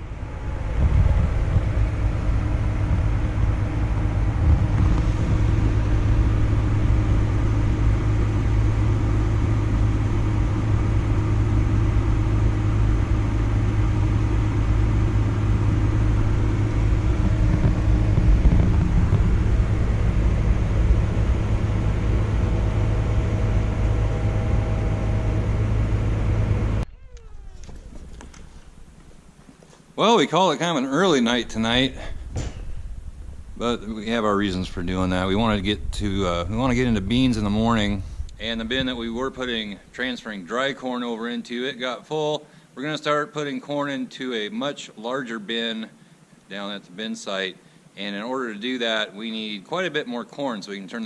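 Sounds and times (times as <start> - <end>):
vehicle engine droning: 0.0 - 29.5, 31.0 - 40.2.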